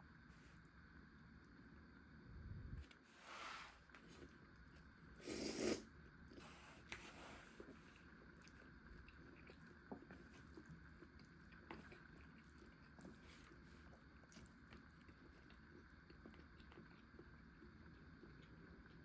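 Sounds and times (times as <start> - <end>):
person chewing food: 7.5 - 19.0.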